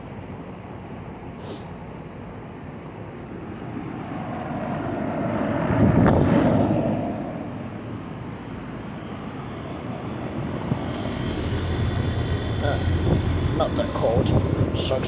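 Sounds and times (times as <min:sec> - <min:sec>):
passing engine noise: 0:03.0 - 0:15.0
air-conditioner units humming: 0:07.2 - 0:15.0.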